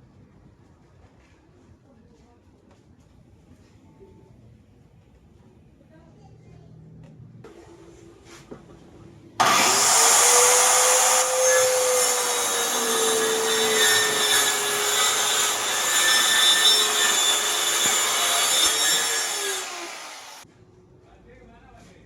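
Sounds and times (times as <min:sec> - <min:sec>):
power tool cutting wood: 0:09.4 - 0:20.4.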